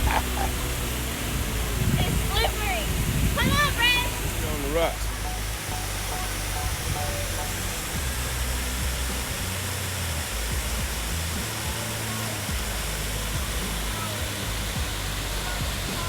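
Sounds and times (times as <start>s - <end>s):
background music low notes: 0.0s - 16.0s
waterfall rushing: 0.0s - 16.0s.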